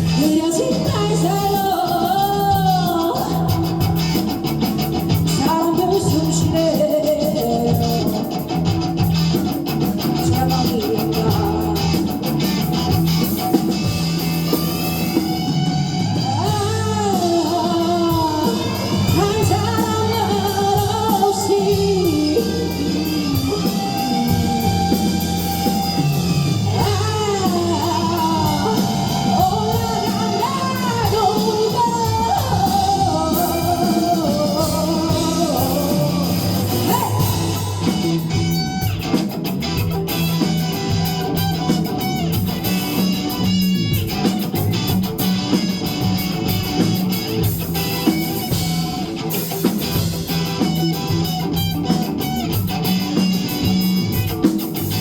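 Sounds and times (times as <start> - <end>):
person singing: 0.0 - 4.2, 5.1 - 8.4, 10.1 - 12.2, 16.1 - 26.1, 26.7 - 38.8
bass guitar: 0.0 - 55.0
drum kit: 0.0 - 55.0
electric guitar: 0.0 - 55.0.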